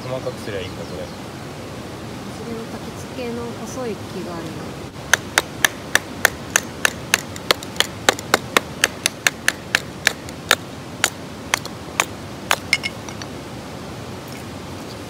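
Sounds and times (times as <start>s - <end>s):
blade splitting firewood knocks: 5.1s - 12.9s.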